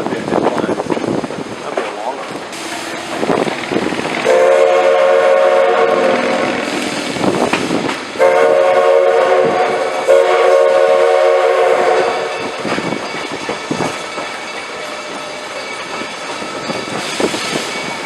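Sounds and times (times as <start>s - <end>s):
wind on microphone: 0.0s - 14.2s, 15.9s - 18.0s
train running noise: 0.0s - 18.0s
steam whistle blasts: 4.2s - 7.1s, 8.2s - 12.5s.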